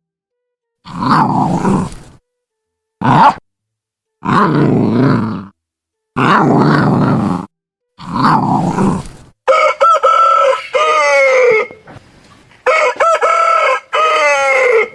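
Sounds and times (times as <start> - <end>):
animal grunting: 0.9 - 2.2, 3.0 - 3.4, 4.2 - 5.5, 6.2 - 9.3
rooster crowing: 9.4 - 11.8, 12.6 - 14.9.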